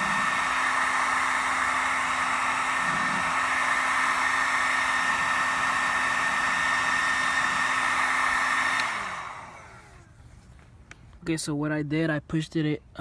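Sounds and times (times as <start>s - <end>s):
heat gun blowing with high whine: 0.0s - 10.2s.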